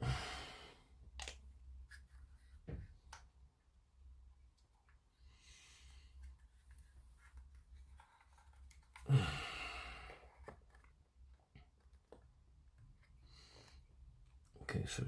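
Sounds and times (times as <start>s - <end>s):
person sighing: 0.0s - 0.8s, 9.0s - 10.3s.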